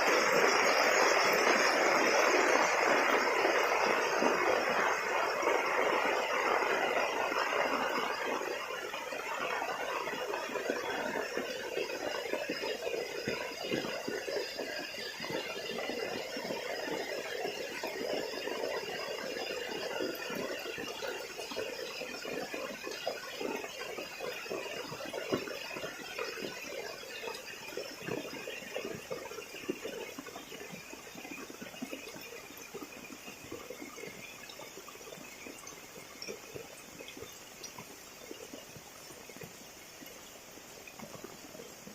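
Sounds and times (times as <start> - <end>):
heavy rain falling: 0.0 - 20.8.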